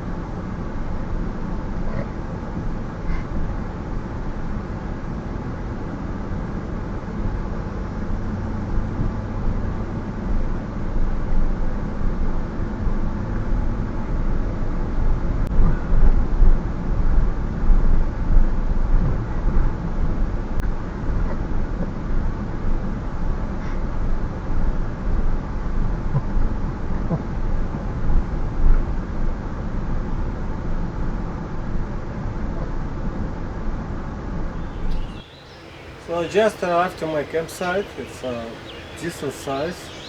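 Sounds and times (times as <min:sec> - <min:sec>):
road noise: 0:34.5 - 0:40.0.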